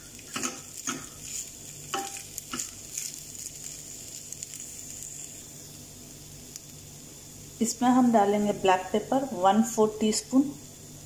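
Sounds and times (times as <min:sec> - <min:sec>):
chicken sizzling in a pan: 0:00.0 - 0:09.1
metal spoon scraping a pan: 0:00.3 - 0:03.2.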